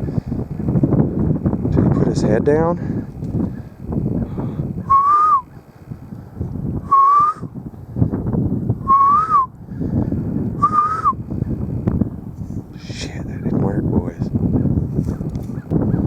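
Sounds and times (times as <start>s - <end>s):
low rumbling noise: 0.0s - 15.0s
person whistling short notes: 4.9s - 5.4s, 6.9s - 7.5s, 8.9s - 9.5s, 10.6s - 11.2s.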